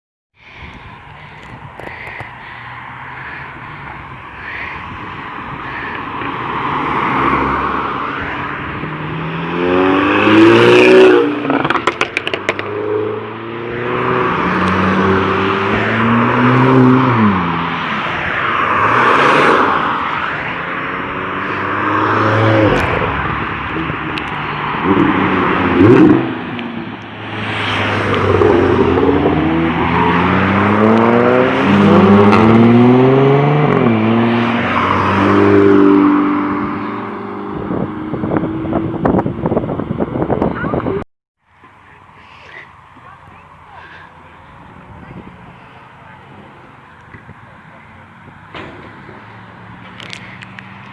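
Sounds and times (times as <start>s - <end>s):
cars accelerating hard: 4.9s - 41.0s.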